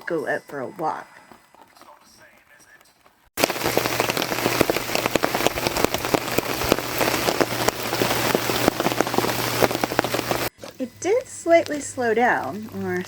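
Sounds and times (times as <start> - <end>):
rain falling: 3.4 - 13.0.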